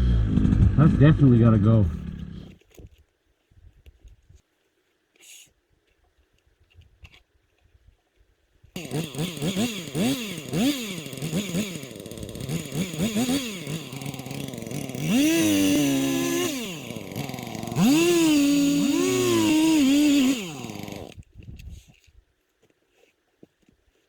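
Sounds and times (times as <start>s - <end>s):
small two-stroke engine revving: 0.0s - 2.6s, 8.8s - 21.2s.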